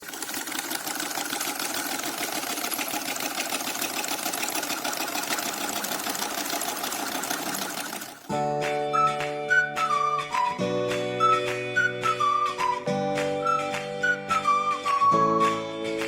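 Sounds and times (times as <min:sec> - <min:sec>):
small engine rattling: 0:00.0 - 0:08.3.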